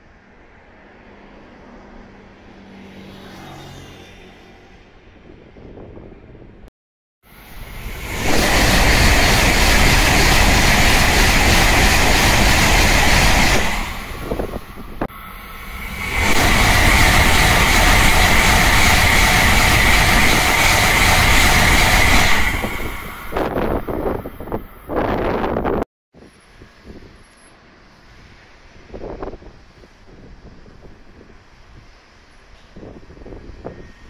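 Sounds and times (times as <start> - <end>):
high-speed train passing: 0.0 - 6.7, 7.3 - 34.0.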